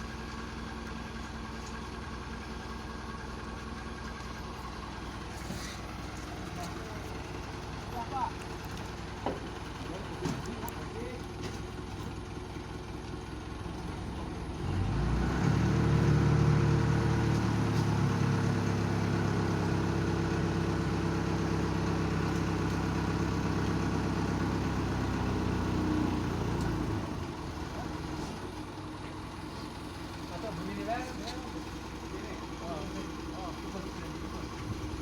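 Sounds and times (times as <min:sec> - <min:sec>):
truck engine revving: 0:14.5 - 0:21.3.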